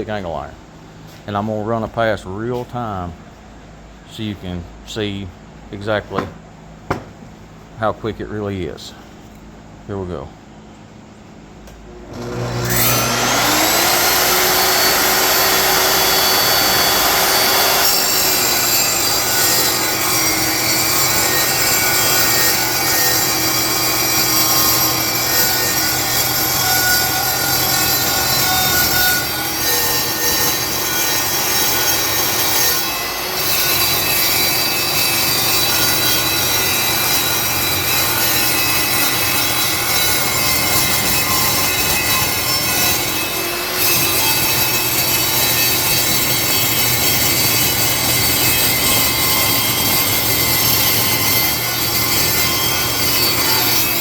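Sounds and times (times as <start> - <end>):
table saw motor whining: 12.0 - 54.0
saw blade cutting steel: 12.2 - 54.0.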